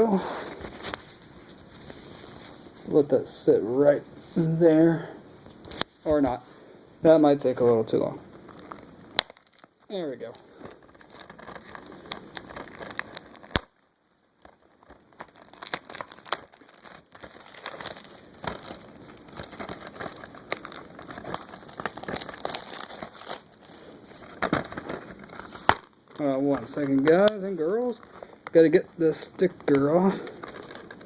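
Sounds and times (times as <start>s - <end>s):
plastic shrink wrap crinkling: 7.4s - 31.0s.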